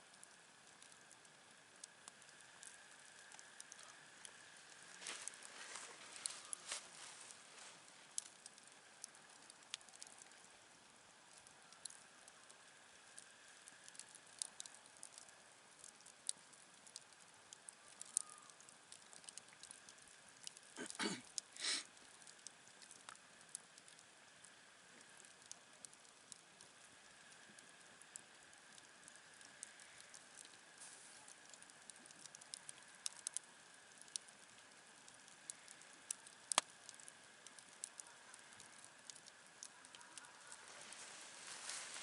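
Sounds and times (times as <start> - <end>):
campfire crackling: 0.0 - 42.0
fire snapping: 0.1 - 42.0.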